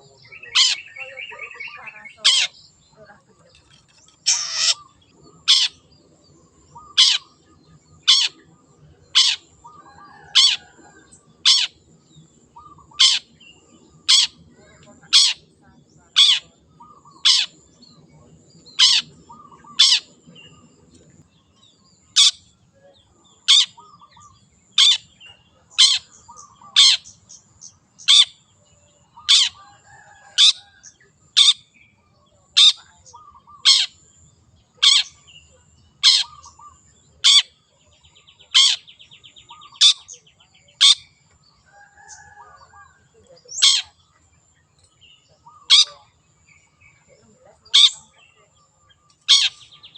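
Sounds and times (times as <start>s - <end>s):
buzzy bird trill: 0.0s - 5.9s, 18.7s - 20.8s
shrike harsh calls: 4.2s - 5.9s.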